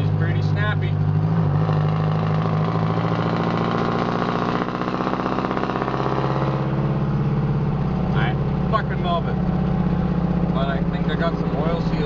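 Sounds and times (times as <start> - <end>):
diesel engine rapid exhaust pulses: 0.0 - 12.0.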